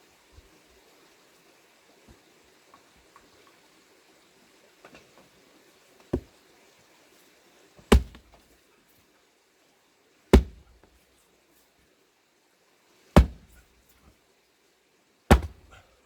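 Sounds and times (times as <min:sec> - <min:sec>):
axe chopping log: 0:06.1 - 0:06.3, 0:07.8 - 0:08.4, 0:10.3 - 0:10.9, 0:13.2 - 0:13.6, 0:15.3 - 0:15.8.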